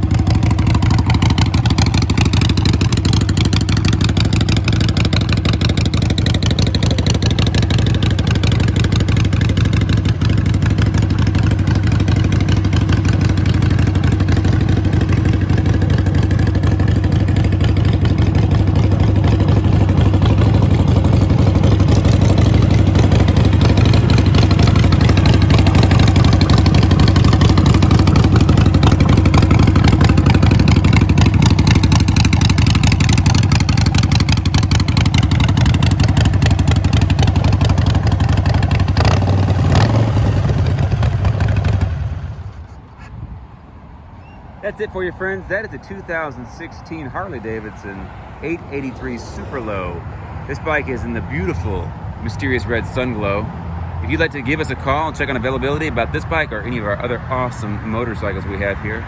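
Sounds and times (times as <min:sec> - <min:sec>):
motorcycle engine running: 0:00.0 - 0:43.1.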